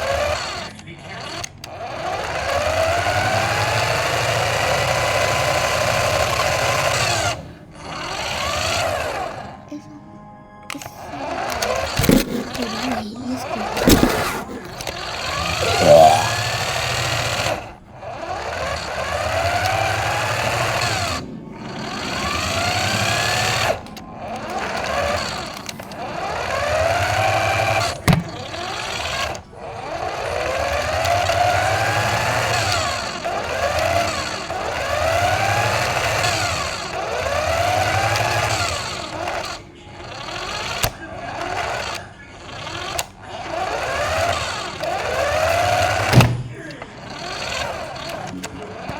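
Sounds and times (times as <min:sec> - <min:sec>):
electric motor whining: 0:00.0 - 0:09.7, 0:10.7 - 0:48.9.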